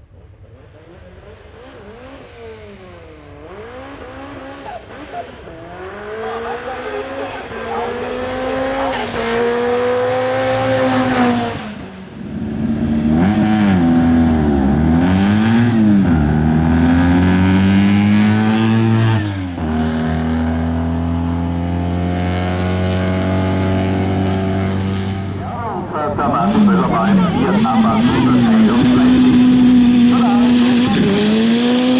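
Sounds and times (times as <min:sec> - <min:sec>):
race car engine revving: 0:00.4 - 0:31.9.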